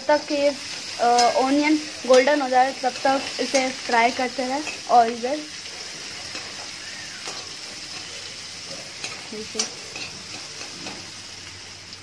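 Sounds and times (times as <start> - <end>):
onions sizzling in hot oil: 0.0 - 12.0
metal spatula clicking on pan: 9.0 - 11.0.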